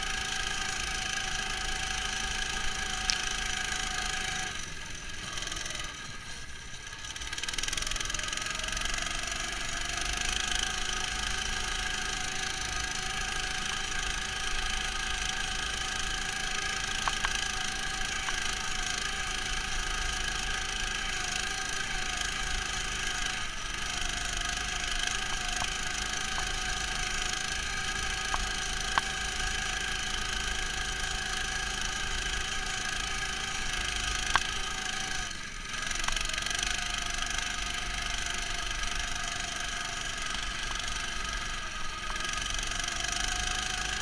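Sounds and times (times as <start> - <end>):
muffled engine running: 0.0 - 44.0.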